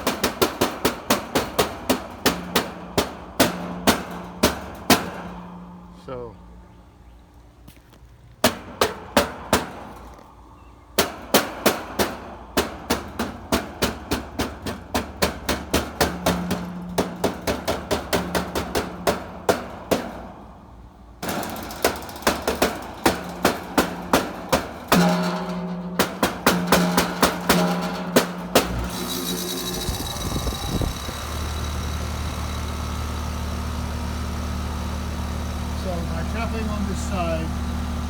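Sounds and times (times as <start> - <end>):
tapping on air conditioner: 0.0 - 5.6, 11.0 - 20.3, 21.2 - 28.9
low electrical hum: 0.0 - 38.0.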